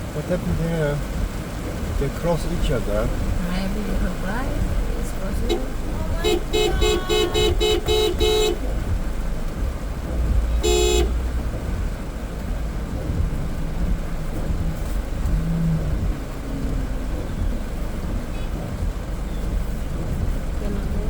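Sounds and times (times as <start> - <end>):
traffic rumble: 0.0 - 21.0
vehicle horn beeping: 5.4 - 9.0, 10.6 - 11.2.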